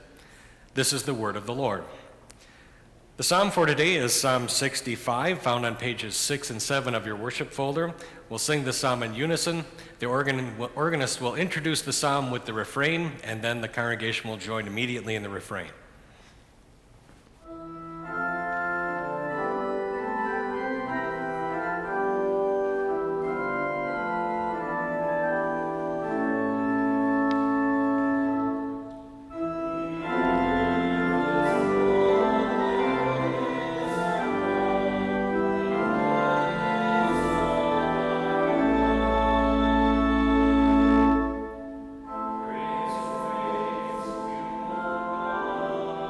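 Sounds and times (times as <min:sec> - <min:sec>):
church organ chords: 0:17.4 - 0:46.0
congregation singing: 0:19.0 - 0:46.0.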